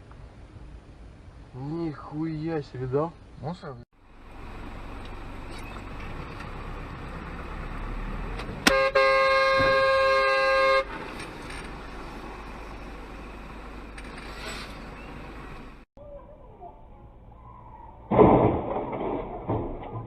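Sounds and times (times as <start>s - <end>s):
road and engine noise: 0.0s - 20.0s
car horn: 8.6s - 11.0s.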